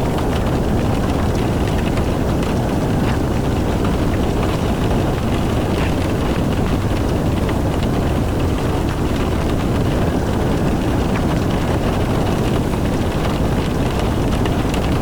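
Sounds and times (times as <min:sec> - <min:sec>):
car tyres and engine rumble: 0:00.0 - 0:15.0
raindrops ticking on car: 0:00.0 - 0:15.0.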